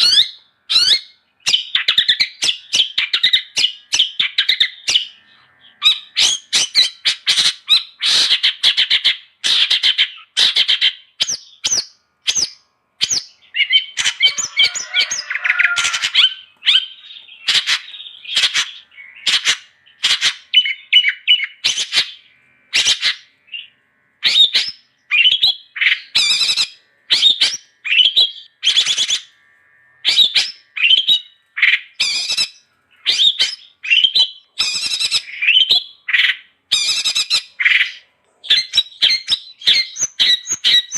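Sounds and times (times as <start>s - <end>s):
shrike singing harsh scratchy notes: 11.5s - 38.1s.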